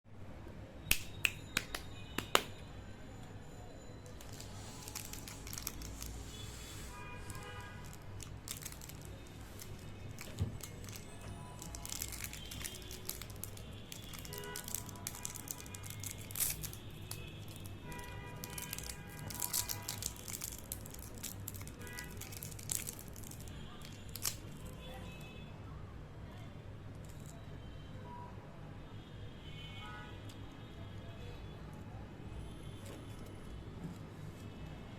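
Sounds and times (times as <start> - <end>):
wrapper crinkling: 4.1 - 25.0.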